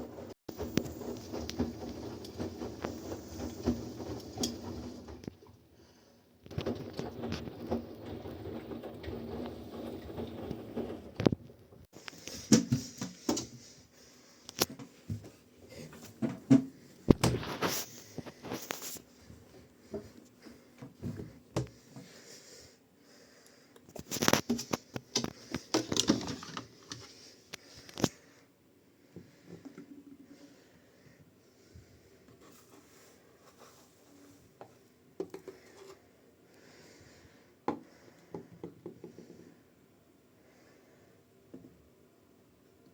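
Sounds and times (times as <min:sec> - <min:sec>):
clicks knocks and rustles of handling: 0:23.8 - 0:28.2.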